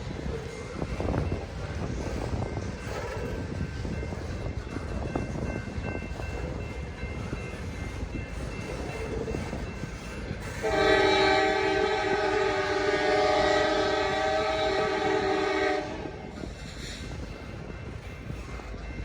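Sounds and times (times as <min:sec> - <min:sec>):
freight train rumbling past: 0:00.0 - 0:19.0
locomotive air horn chord: 0:10.6 - 0:16.2.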